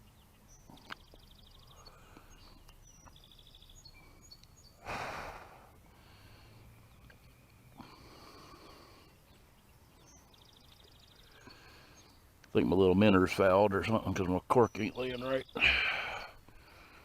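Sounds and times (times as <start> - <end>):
small birds singing trills: 0.0 - 4.9, 5.5 - 17.0
faint riverside ambience: 0.0 - 17.0
soft breath: 4.0 - 7.0, 7.7 - 9.3, 11.2 - 12.2
person sighing: 15.6 - 16.4.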